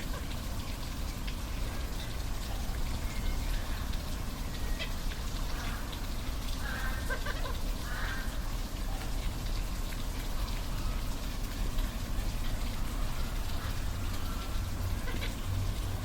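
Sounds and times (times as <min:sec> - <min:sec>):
waterfall rushing: 0:12.3 - 0:16.0.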